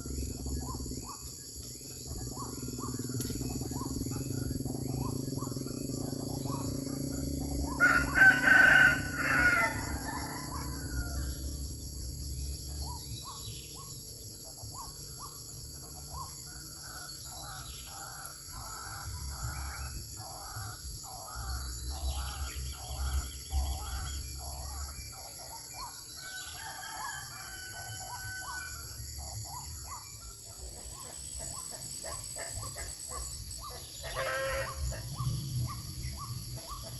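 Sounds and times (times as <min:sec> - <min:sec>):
bird calling: 0:29.5 - 0:36.9.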